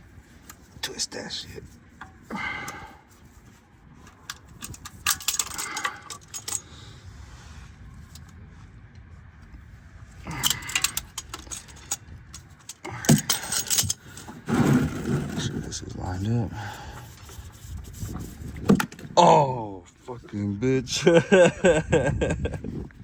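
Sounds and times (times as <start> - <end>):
light metallic clinking and rattling: 4.0 - 6.7, 10.3 - 14.5.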